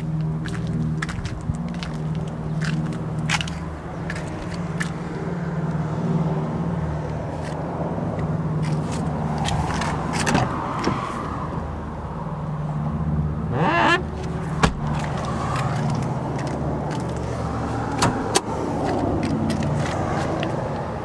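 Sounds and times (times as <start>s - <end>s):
short rising squeal: 13.5s - 14.1s.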